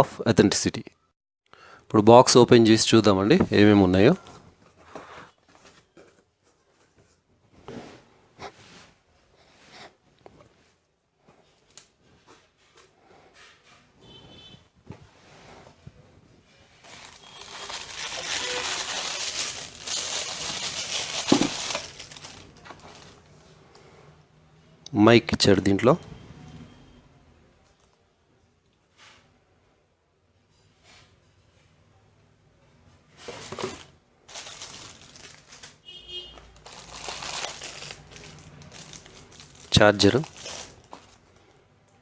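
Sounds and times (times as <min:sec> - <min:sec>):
packaging crinkling and rustling: 0:16.8 - 0:23.4, 0:33.2 - 0:35.8, 0:36.4 - 0:41.4.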